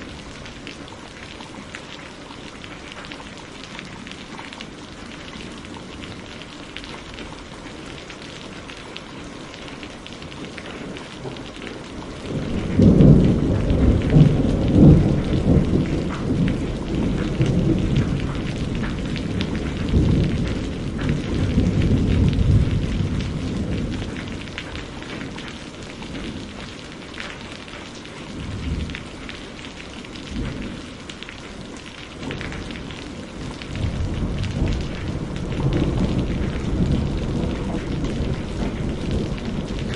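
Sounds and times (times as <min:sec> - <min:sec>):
steady rain falling: 0:00.0 - 0:39.9
thunder rumbling: 0:10.6 - 0:26.8, 0:32.2 - 0:39.9.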